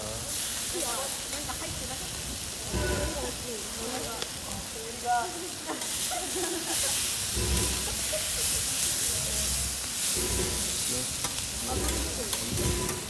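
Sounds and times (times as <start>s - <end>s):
food sizzling on a griddle: 0.0s - 13.0s
metal spatulas tossing food: 7.2s - 13.0s.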